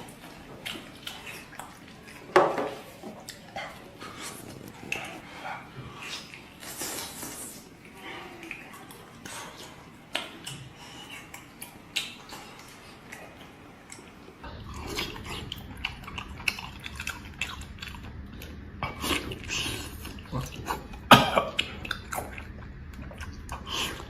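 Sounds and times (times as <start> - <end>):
low steady hum: 0.0 - 24.0
person chewing meat: 0.0 - 24.0
mouth clicks and smacks: 8.4 - 14.3.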